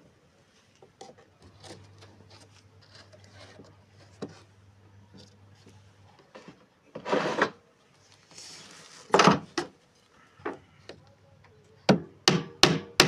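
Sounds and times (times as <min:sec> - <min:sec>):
wood scraping: 0:00.9 - 0:04.5, 0:05.1 - 0:07.6
sharp knocks on wood: 0:11.9 - 0:13.0.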